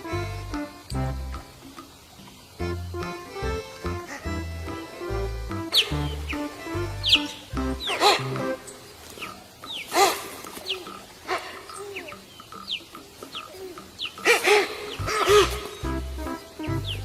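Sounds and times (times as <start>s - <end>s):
falling bird-like chirps: 5.0s - 17.0s
low coo-like calls: 5.0s - 17.0s.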